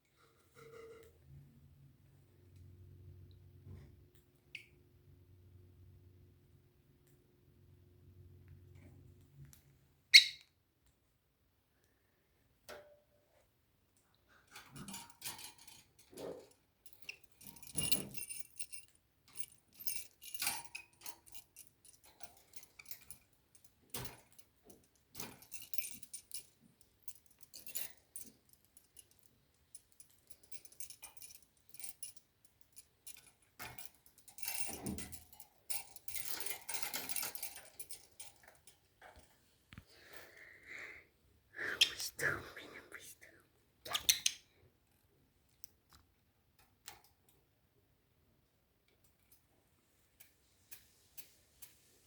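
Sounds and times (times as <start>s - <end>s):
bird clicks and rustles: 14.4s - 40.3s, 43.8s - 44.5s
light metallic jingling: 14.5s - 39.5s.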